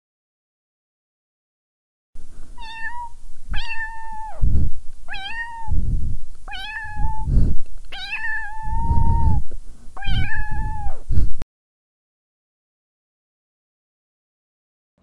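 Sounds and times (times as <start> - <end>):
loud low muffled noise: 2.2 - 11.4
cat meowing: 2.6 - 4.4, 5.1 - 5.8, 6.5 - 7.3, 7.9 - 9.4, 10.0 - 11.0.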